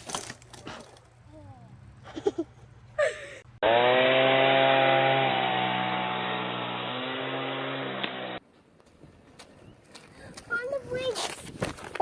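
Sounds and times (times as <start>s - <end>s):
small motor buzzing: 3.6s - 8.4s.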